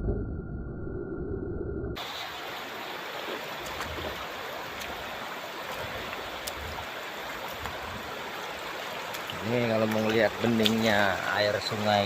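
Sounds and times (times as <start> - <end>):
river water rushing over stream bed: 2.0 - 12.0.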